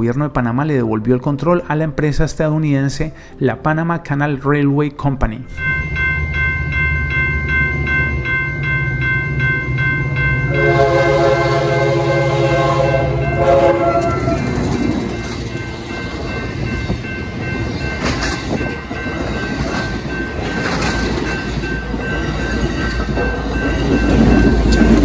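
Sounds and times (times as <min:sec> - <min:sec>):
train wheels rumbling on rails: 0:05.6 - 0:25.0
train air horn: 0:10.5 - 0:14.6.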